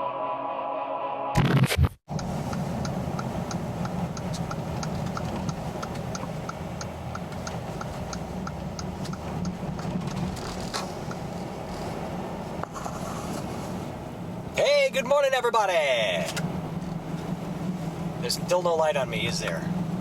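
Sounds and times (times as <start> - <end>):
turn signal ticking: 2.1 - 13.5
car engine running: 2.1 - 20.0.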